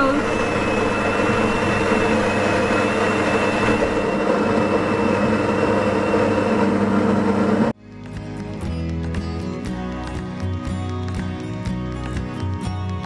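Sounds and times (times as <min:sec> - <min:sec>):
coffee machine pump humming: 0:00.0 - 0:07.7.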